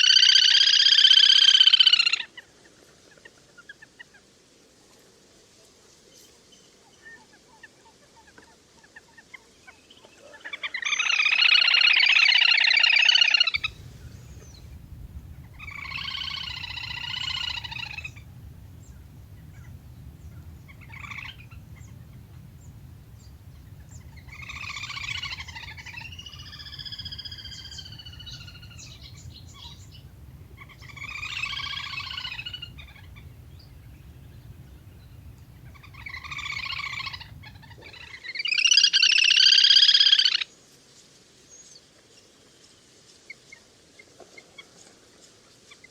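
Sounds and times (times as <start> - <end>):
low steady hum: 13.6 - 38.0
grebe trilling calls: 13.6 - 38.1.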